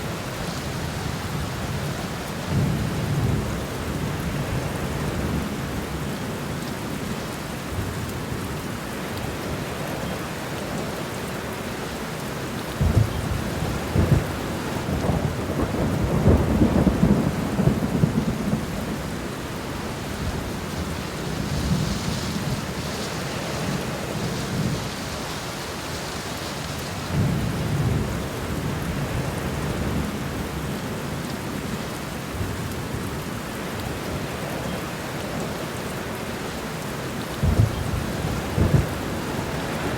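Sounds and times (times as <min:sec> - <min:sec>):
steady rain falling: 0:00.0 - 0:39.9
thunder rumbling: 0:12.7 - 0:25.7, 0:37.3 - 0:39.9.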